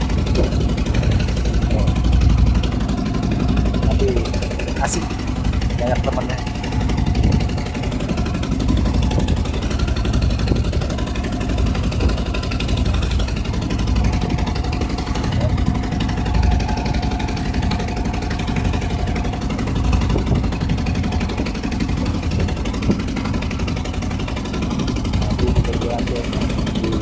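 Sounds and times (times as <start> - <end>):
boat engine droning: 0.0 - 27.0
wind noise: 6.8 - 17.1, 19.9 - 21.4.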